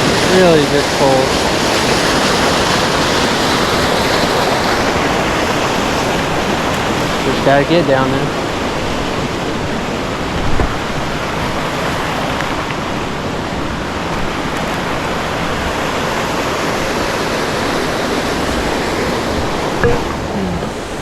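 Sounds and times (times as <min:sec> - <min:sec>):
creek water rushing over rocks: 0:00.0 - 0:21.0
low thump: 0:19.8 - 0:20.8.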